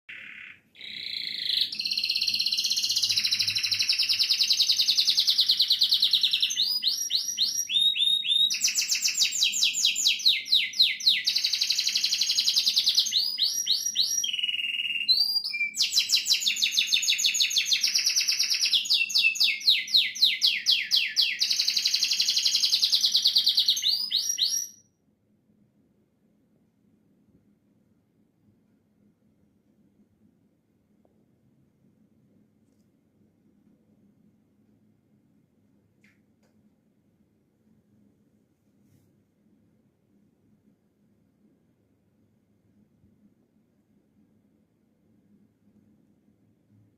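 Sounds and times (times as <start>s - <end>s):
canary singing trills: 0.1s - 24.8s.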